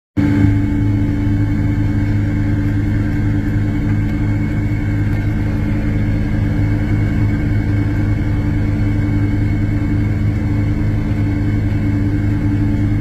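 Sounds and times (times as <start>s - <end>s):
tractor diesel engine running: 0.2s - 13.0s.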